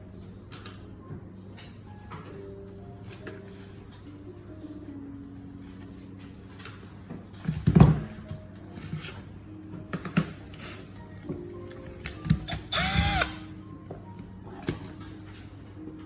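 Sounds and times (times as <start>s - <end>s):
power drill spinning: 12.5s - 13.4s.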